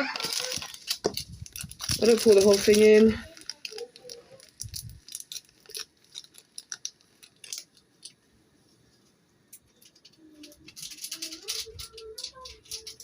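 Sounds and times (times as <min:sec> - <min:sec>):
seasoning sachet crinkling: 0:00.0 - 0:08.2, 0:09.6 - 0:13.0
denser rustle: 0:00.0 - 0:09.2.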